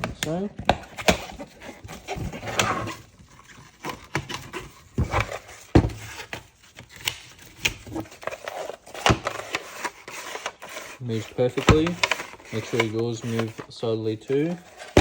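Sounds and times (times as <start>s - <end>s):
plastic parts scraping: 0.0s - 15.0s
plastic parts clicking and knocking: 3.6s - 10.6s, 11.4s - 15.0s.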